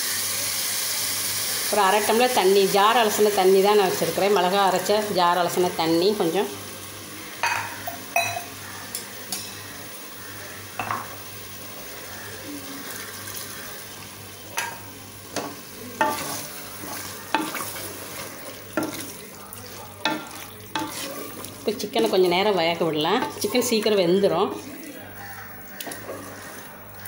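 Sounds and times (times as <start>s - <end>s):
chicken sizzling in a pot: 0.0s - 27.0s
spoon scraping a pot: 14.6s - 24.6s, 25.2s - 27.0s.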